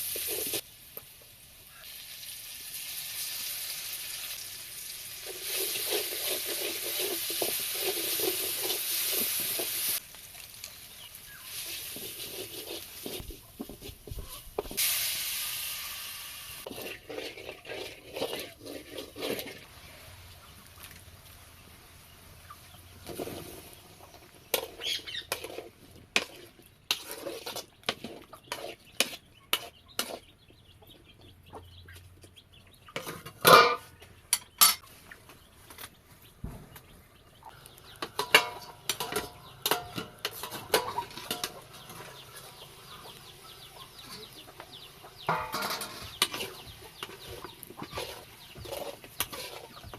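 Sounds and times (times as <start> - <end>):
pots and utensils clinking: 5.2 - 10.0, 16.6 - 19.7, 32.9 - 34.8, 38.0 - 42.4, 45.3 - 49.9.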